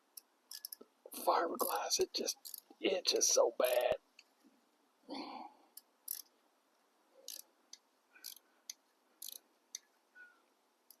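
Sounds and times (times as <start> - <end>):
tool clicks and scrapes on metal: 0.5 - 0.8, 8.2 - 9.8.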